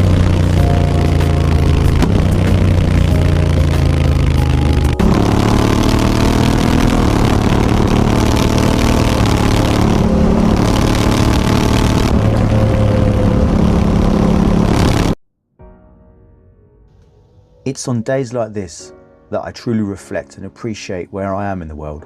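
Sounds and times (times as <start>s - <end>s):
motorcycle engine while riding: 0.0s - 15.2s
road noise: 0.0s - 15.2s.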